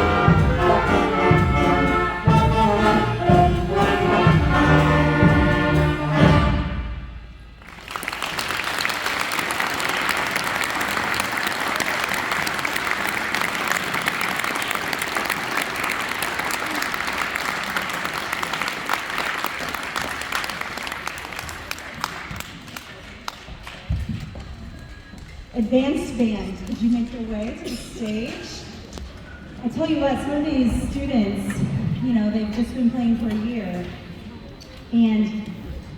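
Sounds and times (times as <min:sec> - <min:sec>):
audience applauding: 0:07.6 - 0:23.9.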